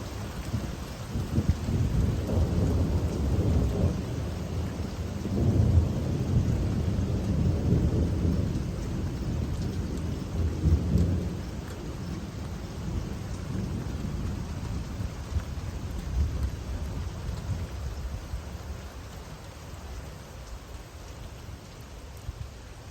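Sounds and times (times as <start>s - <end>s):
thunder rumbling: 0.0s - 18.2s
steady rain: 0.0s - 22.9s.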